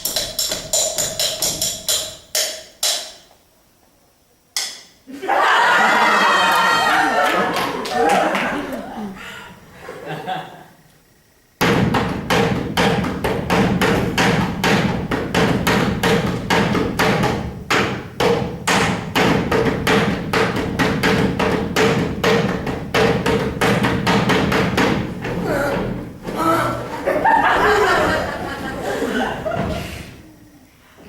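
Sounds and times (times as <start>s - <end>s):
rhythmic percussion on glasses and table: 0.0s - 3.3s, 11.6s - 28.3s.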